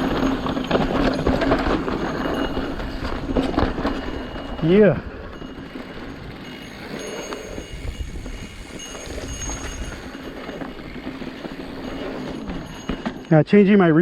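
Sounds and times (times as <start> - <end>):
bike tyre and chassis rattle: 0.0 - 13.4
wind on microphone: 7.5 - 10.2.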